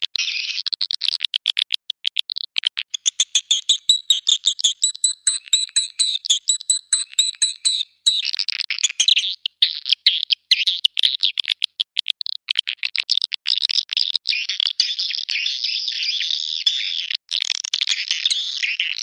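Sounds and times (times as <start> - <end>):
swiftlet lure call chirps: 3.3 - 8.3.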